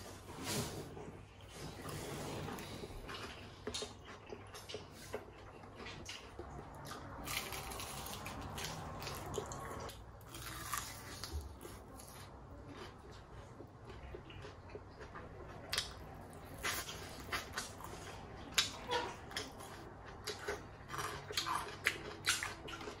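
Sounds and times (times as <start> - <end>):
crunchy bites and chewing: 6.1 - 12.9.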